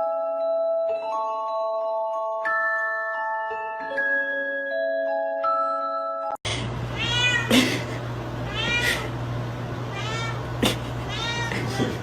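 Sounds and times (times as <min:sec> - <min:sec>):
chiming mallet percussion music: 0:00.0 - 0:06.4
steady low hum: 0:06.5 - 0:12.0
cat meowing: 0:07.0 - 0:07.5, 0:08.5 - 0:09.1, 0:09.9 - 0:12.0.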